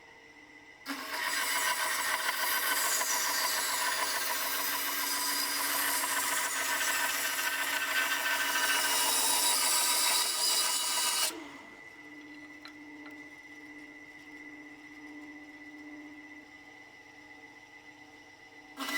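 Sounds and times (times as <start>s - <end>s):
bandsaw humming and whining: 0.8s - 18.9s
bandsaw cutting wood: 0.9s - 11.4s.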